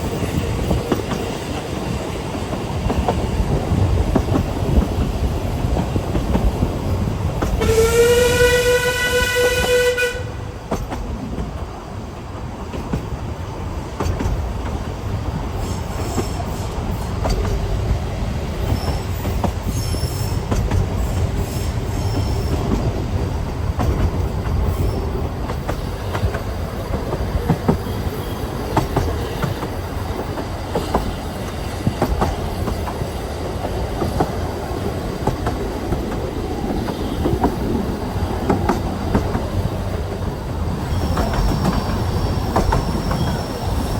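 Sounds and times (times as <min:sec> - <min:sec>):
rail joint clicks: 0:00.0 - 0:43.9
train wheels rumbling on rails: 0:00.0 - 0:43.9
high wheel squeal: 0:18.6 - 0:22.7, 0:40.8 - 0:43.9.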